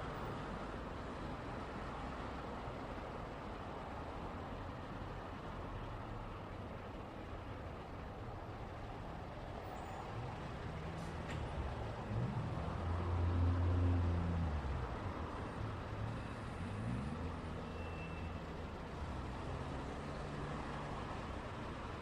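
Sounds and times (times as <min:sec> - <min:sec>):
vehicle engines pulling away: 0:10.0 - 0:22.0.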